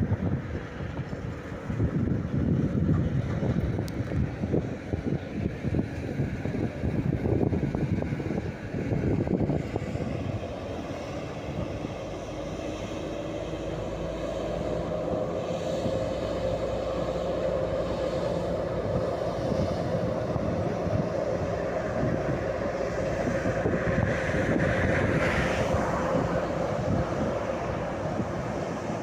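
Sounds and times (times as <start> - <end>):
diesel locomotive humming and rumbling: 0.0 - 29.0
wind buffeting microphone: 0.0 - 29.0.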